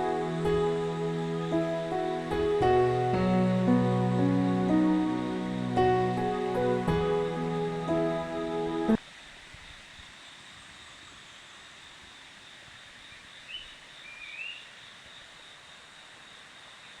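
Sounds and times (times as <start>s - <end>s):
music: 0.0s - 9.0s
faint outdoor hiss: 0.0s - 17.0s.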